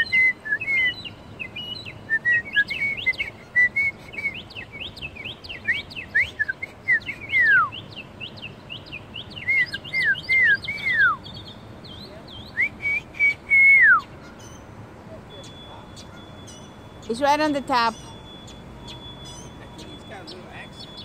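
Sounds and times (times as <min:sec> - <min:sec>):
songbird singing: 0:00.0 - 0:21.0
long descending bird whistles: 0:09.4 - 0:11.2.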